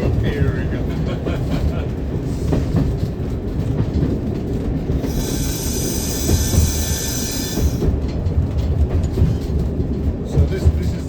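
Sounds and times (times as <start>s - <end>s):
train rumble: 0.0s - 11.0s
high hissing squeal: 5.0s - 7.9s.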